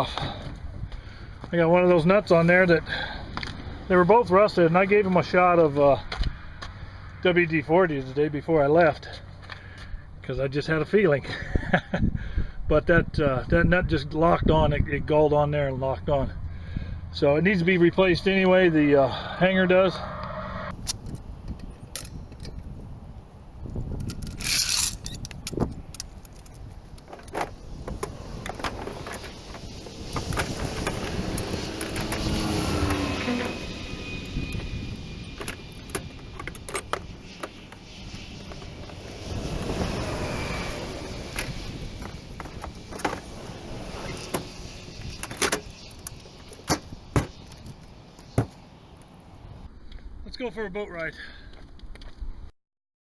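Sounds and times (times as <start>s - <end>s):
vehicle engine hum: 0.0s - 10.6s, 14.9s - 49.8s
sharp knocks and clunks: 46.6s - 47.4s, 48.3s - 48.6s.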